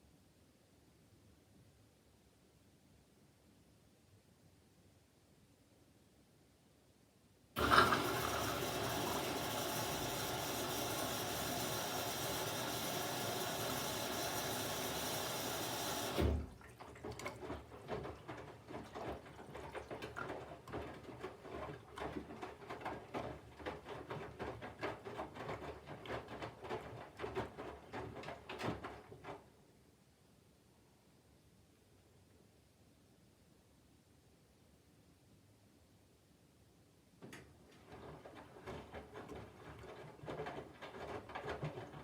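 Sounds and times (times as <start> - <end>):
water rushing into washing machine: 7.6 - 29.4, 37.7 - 42.0
water trickling and splashing: 15.9 - 22.4.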